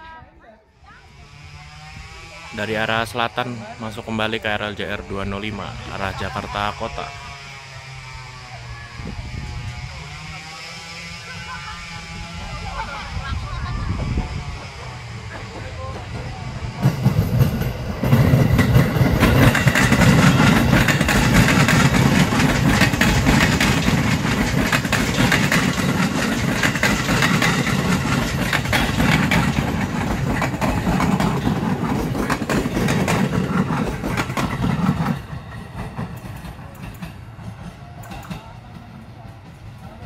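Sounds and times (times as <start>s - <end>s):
electric train passing: 0.7s - 40.0s
wheels clicking over rail joints: 15.4s - 39.6s.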